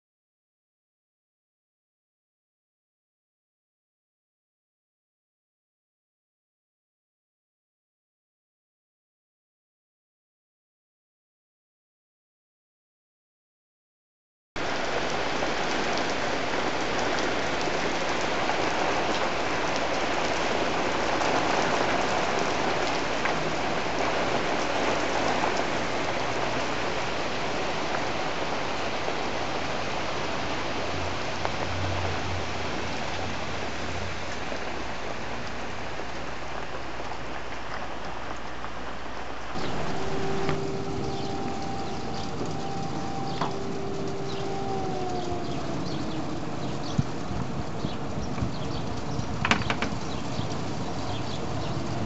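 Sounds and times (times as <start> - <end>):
heavy rain on hard surfaces: 14.6 - 52.0.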